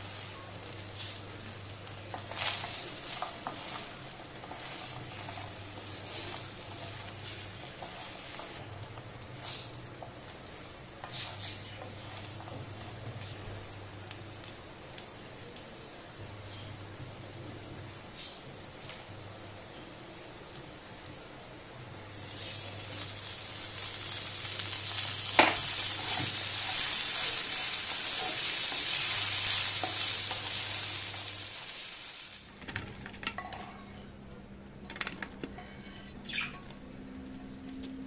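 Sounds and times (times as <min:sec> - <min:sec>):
potatoes sizzling in butter: 0:00.0 - 0:32.5
wooden spatula stirring: 0:02.0 - 0:08.6.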